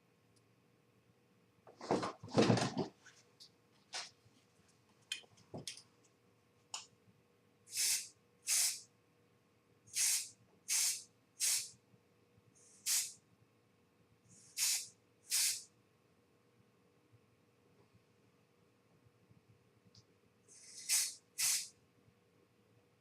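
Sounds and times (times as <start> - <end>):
spray paint can hissing: 7.7 - 8.9, 9.9 - 11.8, 12.8 - 13.2, 14.4 - 15.7, 20.5 - 21.7.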